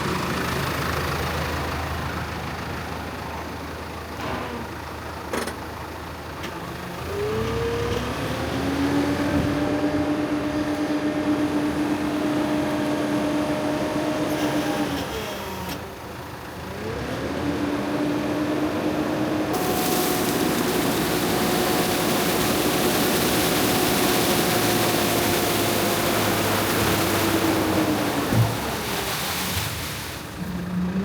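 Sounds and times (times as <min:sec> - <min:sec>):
diesel engine revving: 0:06.7 - 0:31.0.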